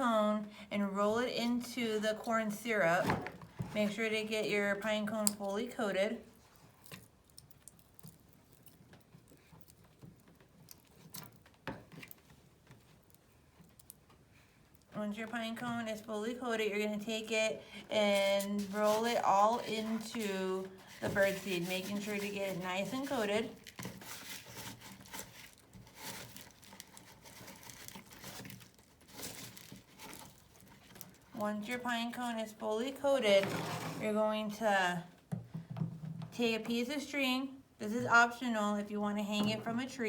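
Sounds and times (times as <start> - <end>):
bird seed rustling and crackling: 20.8 - 31.3.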